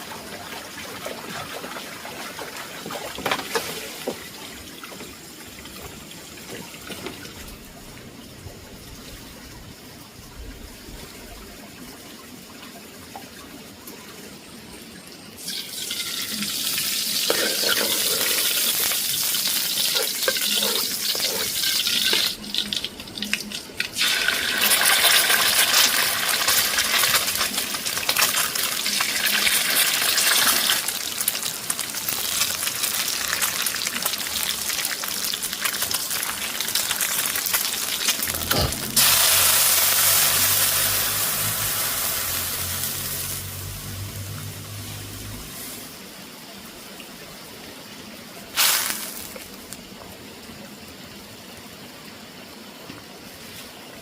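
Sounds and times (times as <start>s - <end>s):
water running and splashing: 15.4s - 47.7s, 48.5s - 50.2s
low hum: 38.1s - 45.8s.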